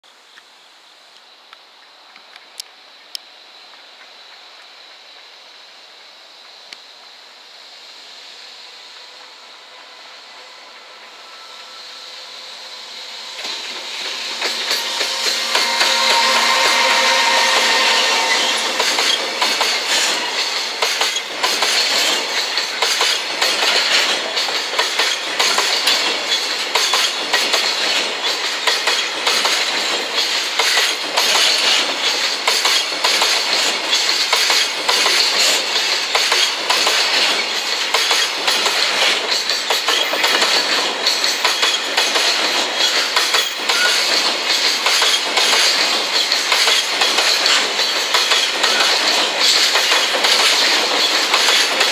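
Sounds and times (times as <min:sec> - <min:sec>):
freight train rolling past: 0:01.2 - 0:51.9
wheels clattering over rail joints: 0:18.8 - 0:51.9.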